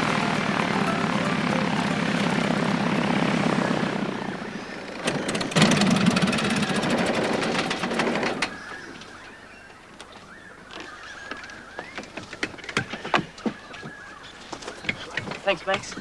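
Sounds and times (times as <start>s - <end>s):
propeller plane engine running: 0.0s - 8.6s.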